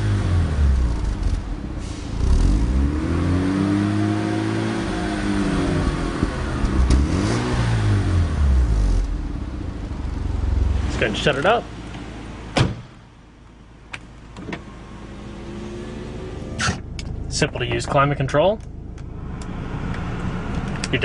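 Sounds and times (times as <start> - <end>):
rotary engine revving: 2.1 - 9.3.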